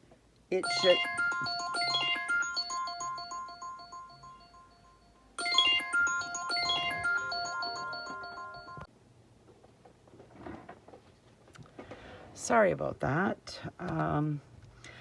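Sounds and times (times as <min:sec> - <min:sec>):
phone ringtone melody: 0:00.6 - 0:08.9.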